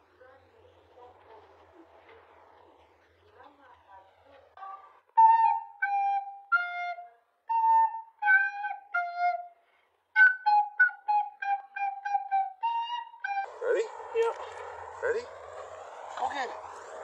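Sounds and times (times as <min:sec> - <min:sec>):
flute-like melody: 0:05.1 - 0:17.0.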